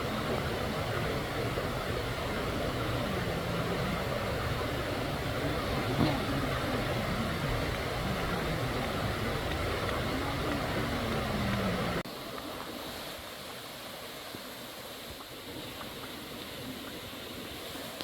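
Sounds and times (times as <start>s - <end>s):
waterfall rushing: 0.0s - 13.1s.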